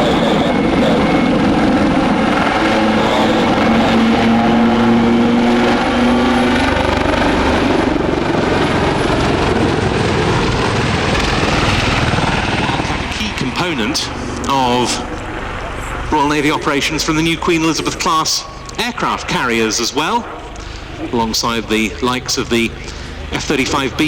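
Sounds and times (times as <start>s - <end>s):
military helicopters flying close: 0.0s - 24.0s
steady hum: 11.3s - 24.0s.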